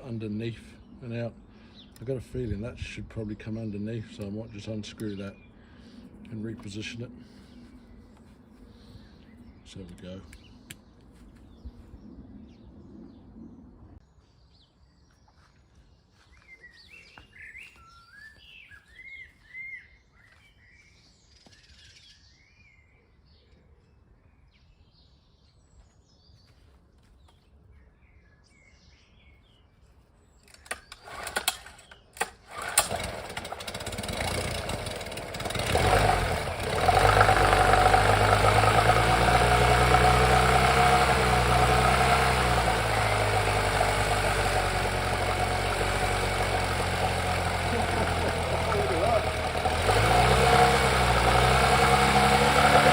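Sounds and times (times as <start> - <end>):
faint birds chirping: 0.0 - 32.4
outboard engine cranking and running: 30.6 - 52.9.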